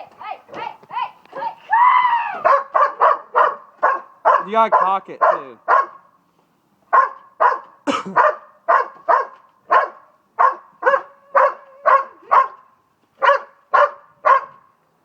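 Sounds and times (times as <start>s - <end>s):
dog barking: 2.3s - 6.2s, 6.9s - 14.7s.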